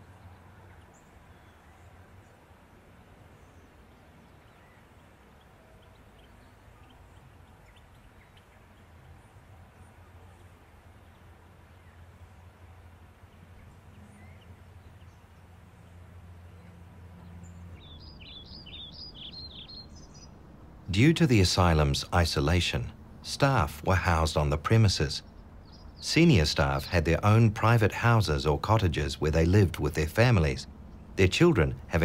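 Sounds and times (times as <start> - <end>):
low steady rumble: 11.8 - 32.0
faint bird chirps: 13.3 - 32.0
songbird singing high notes: 17.8 - 32.0.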